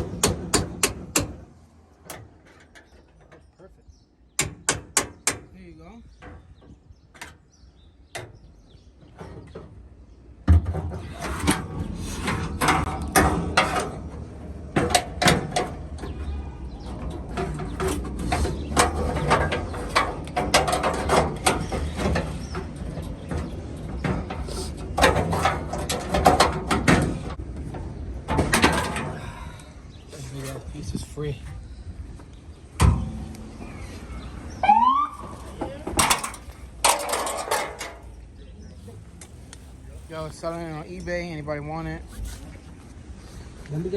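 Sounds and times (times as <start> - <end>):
metallic knocks and scraping: 0.0 - 3.6, 4.3 - 29.3, 32.6 - 34.6, 35.2 - 38.4.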